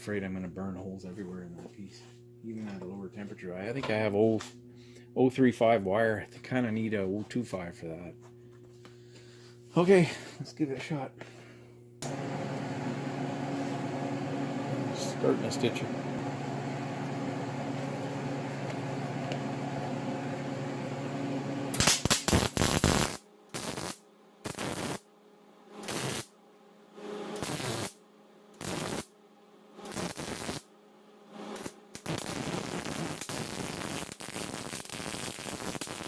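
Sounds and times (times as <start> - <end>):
welder arc buzzing: 12.0 - 25.1, 25.8 - 26.4, 27.2 - 28.0, 28.6 - 29.1, 29.8 - 30.7, 31.3 - 36.0
welding arc crackle bursts: 21.7 - 25.1, 25.8 - 26.3, 27.4 - 28.0, 28.6 - 29.1, 29.8 - 30.7, 31.4 - 36.0.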